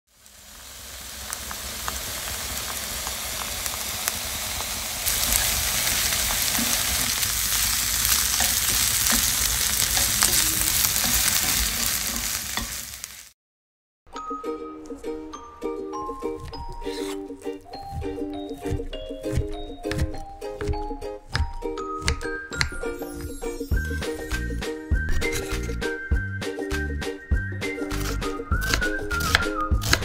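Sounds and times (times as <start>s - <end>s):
food sizzling in oil: 0.1s - 13.4s.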